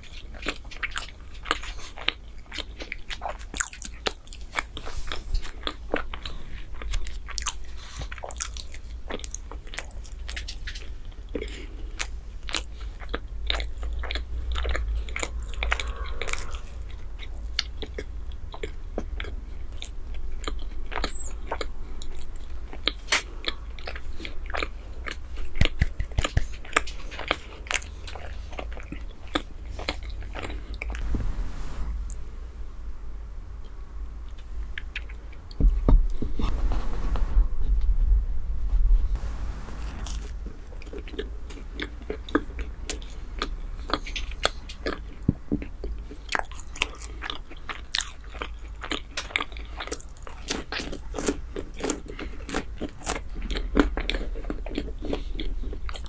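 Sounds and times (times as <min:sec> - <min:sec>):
person chewing soft bread: 0:00.0 - 0:31.0, 0:33.6 - 0:36.5, 0:39.2 - 0:56.0
wet mouth clicks and smacks: 0:24.5 - 0:27.9.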